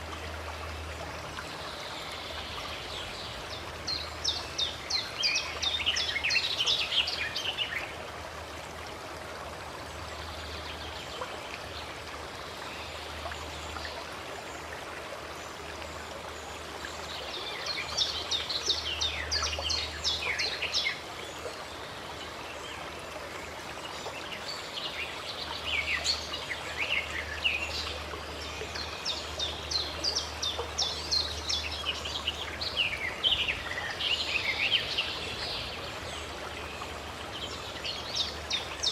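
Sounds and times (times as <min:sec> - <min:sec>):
stream water running: 0:00.0 - 0:38.9
songbirds chirping: 0:09.8 - 0:38.9.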